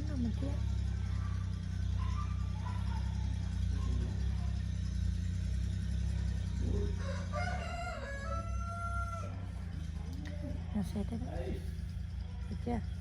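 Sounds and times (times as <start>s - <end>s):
steady low hum: 0.0s - 13.0s
rooster crowing: 6.7s - 9.8s.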